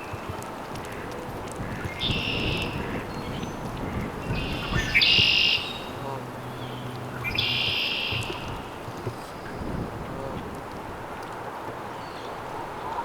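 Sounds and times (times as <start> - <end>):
songbird buzzy high trills: 4.3 - 9.6.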